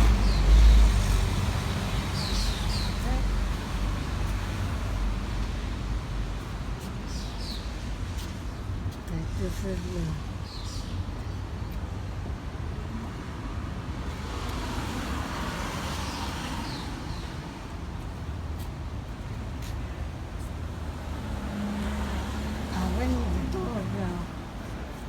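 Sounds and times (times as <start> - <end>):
city traffic rumble: 0.0 - 25.0
vehicle passing: 20.6 - 25.0.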